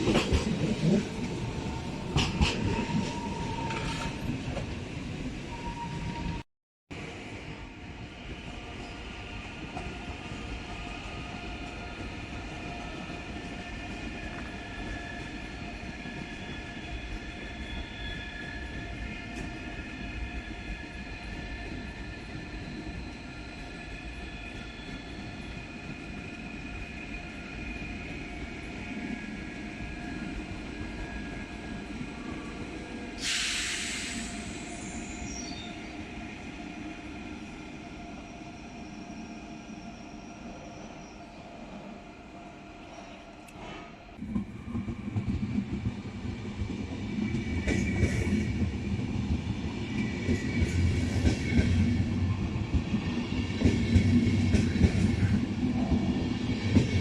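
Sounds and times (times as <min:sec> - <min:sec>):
train rumbling: 0:00.0 - 0:06.4, 0:40.4 - 0:57.0
train wheel squeal: 0:01.7 - 0:04.4, 0:05.5 - 0:06.4, 0:08.4 - 0:31.8, 0:33.0 - 0:41.9, 0:49.8 - 0:57.0
sudden loud hiss: 0:33.2 - 0:35.2.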